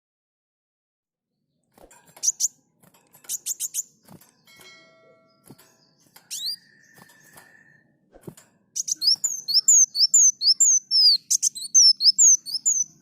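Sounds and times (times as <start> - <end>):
bird singing high chirps: 2.2 - 2.6, 3.2 - 8.0, 8.8 - 13.0.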